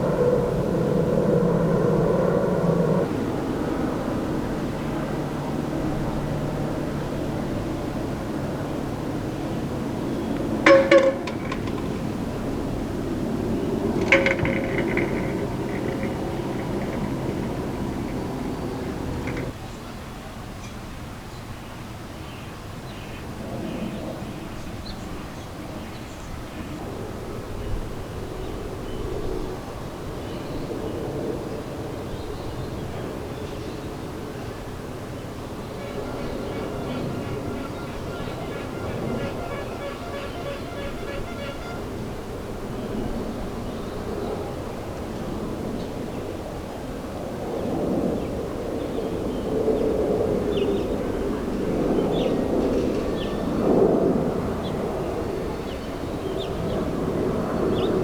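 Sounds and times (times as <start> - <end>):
steady outdoor rumble: 0.0 - 19.6, 35.2 - 45.9.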